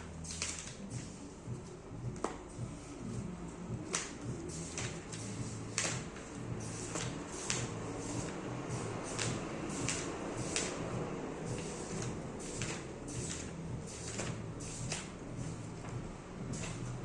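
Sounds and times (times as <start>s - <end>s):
steady low hum: 0.0s - 17.0s
book pages turning: 0.3s - 1.1s, 3.9s - 10.9s, 11.5s - 15.1s.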